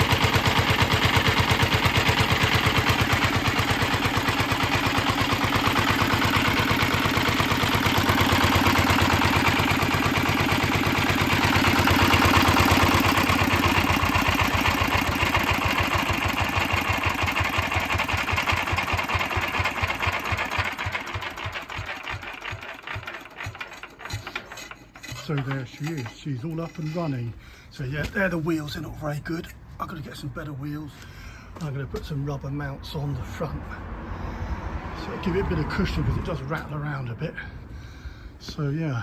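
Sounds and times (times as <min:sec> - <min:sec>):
stationary engine running: 0:00.0 - 0:26.9.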